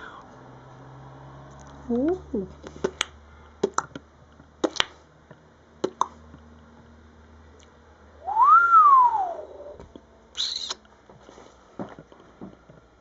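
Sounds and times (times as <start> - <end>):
long gliding whistle: 8.2 - 9.8.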